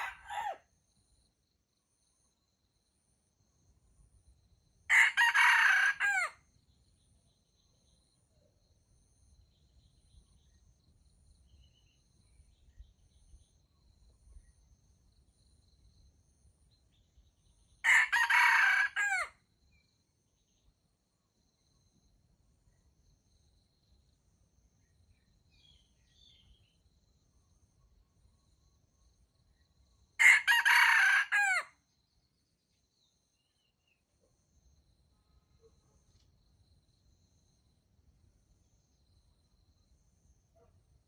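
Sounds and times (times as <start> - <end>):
rooster crowing: 0.0 - 0.6, 4.9 - 6.4, 17.8 - 19.4, 30.2 - 31.7.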